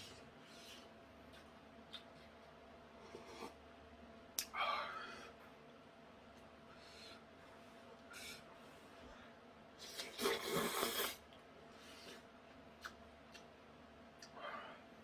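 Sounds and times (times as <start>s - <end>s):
person slurping noodles: 9.8s - 11.2s.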